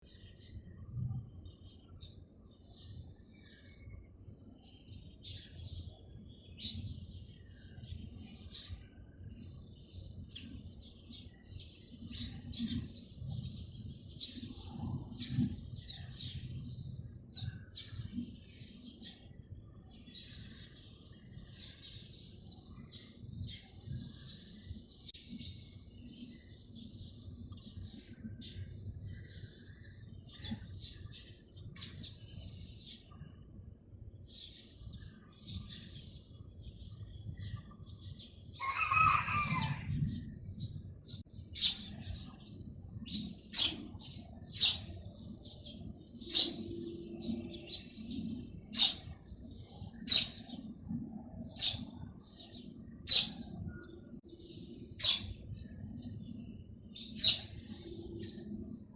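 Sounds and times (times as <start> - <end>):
birds chirping: 34.2 - 58.9.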